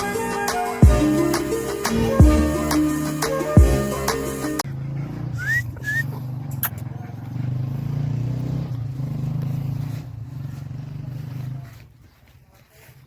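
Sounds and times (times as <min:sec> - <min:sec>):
engine running low: 0:00.0 - 0:12.4
short rising chirps: 0:05.4 - 0:06.8.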